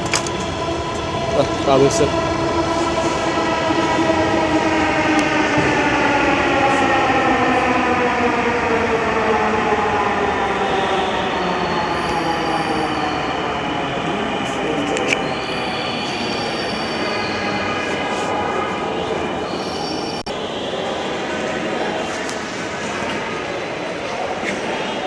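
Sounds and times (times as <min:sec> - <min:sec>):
electric train motors whining: 0:00.0 - 0:22.5.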